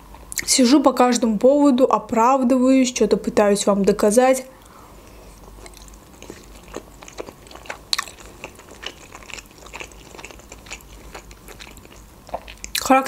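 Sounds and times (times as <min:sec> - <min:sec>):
wet chewing: 0:05.1 - 0:13.0.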